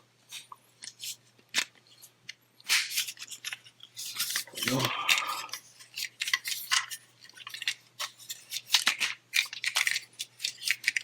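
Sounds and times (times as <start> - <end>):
plastic toy parts clicking and scraping: 0.3 - 11.0.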